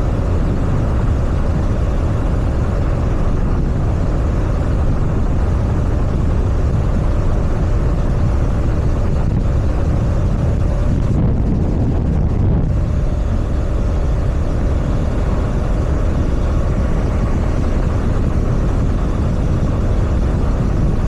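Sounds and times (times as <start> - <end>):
wind rush over microphone: 0.0 - 21.0.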